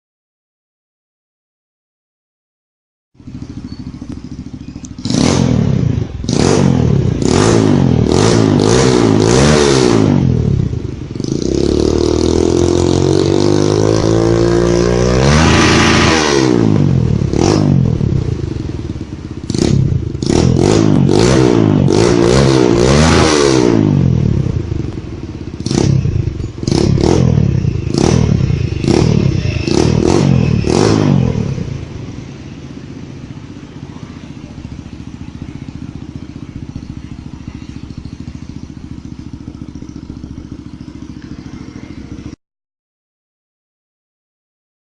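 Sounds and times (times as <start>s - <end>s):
motorcycle engine revving: 3.2s - 42.4s.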